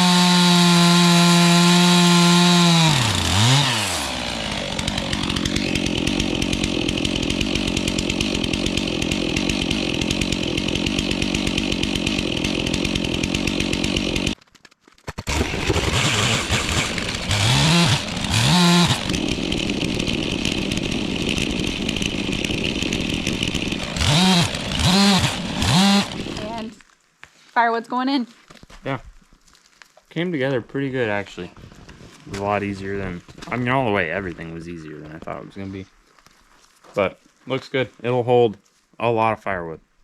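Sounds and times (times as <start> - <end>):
chainsaw cutting logs: 0.0 - 26.8, 31.1 - 35.4.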